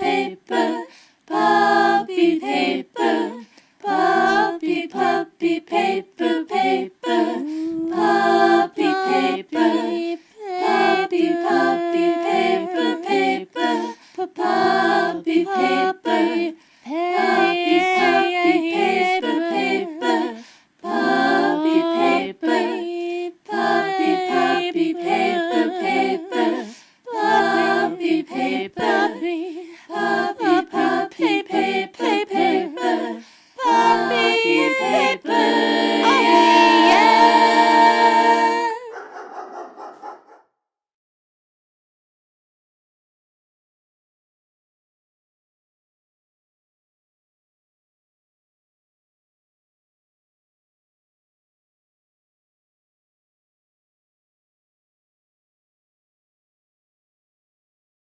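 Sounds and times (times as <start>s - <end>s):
person singing a cappella: 0.0s - 39.0s.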